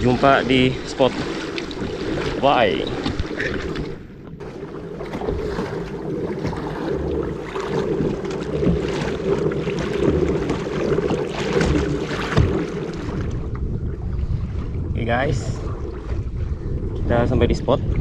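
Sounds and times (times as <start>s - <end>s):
water rushing and splashing: 0.0s - 18.0s
wind buffeting microphone: 5.0s - 18.0s.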